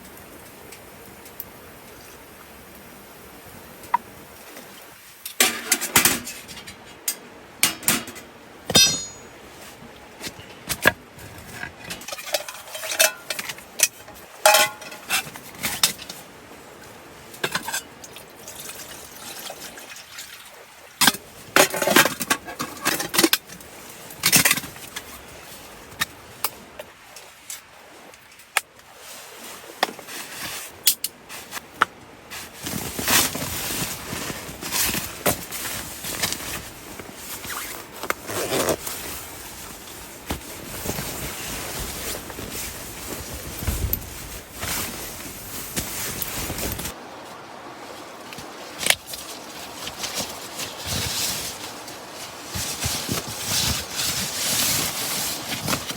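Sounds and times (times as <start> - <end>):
cookware and utensils clinking: 5.4 - 9.3, 11.9 - 15.9.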